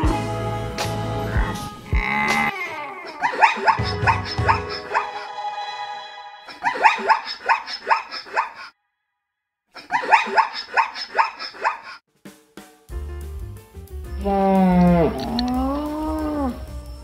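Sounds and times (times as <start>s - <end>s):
zebra barking high yips: 3.2s - 5.2s, 6.5s - 8.7s.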